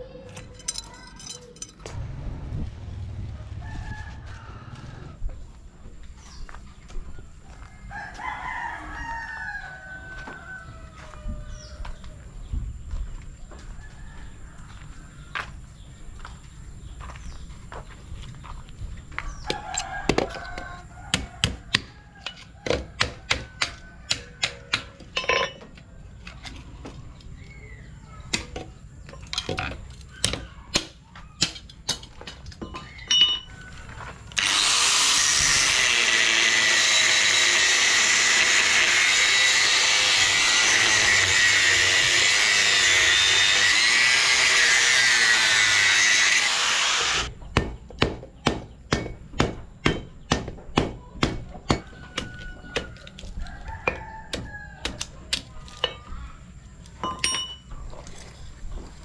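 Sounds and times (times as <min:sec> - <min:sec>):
power tool running: 0:34.3 - 0:47.3.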